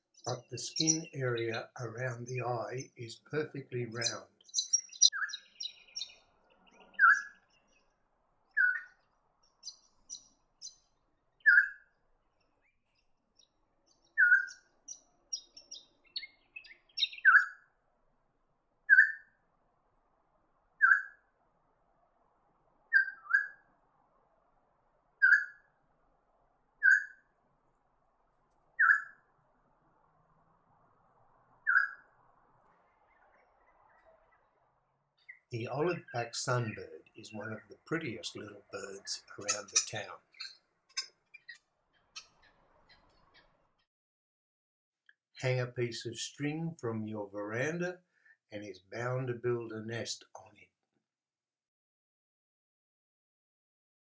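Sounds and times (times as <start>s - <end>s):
bird repeating clear note: 0.3s - 3.1s.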